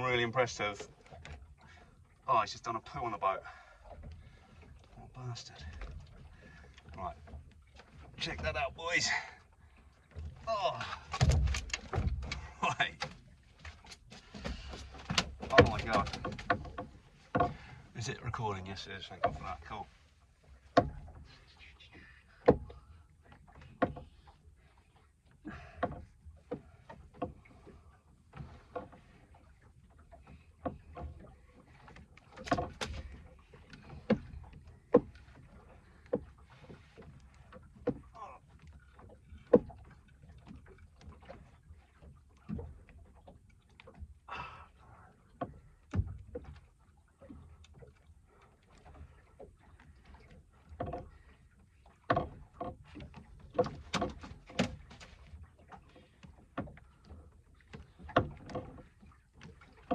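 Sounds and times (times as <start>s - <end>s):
knocks and thumps in a boat: 0.0s - 59.9s.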